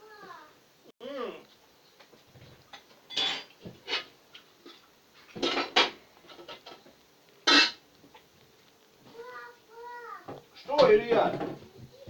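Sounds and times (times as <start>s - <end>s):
pots and utensils clattering: 2.6s - 7.8s.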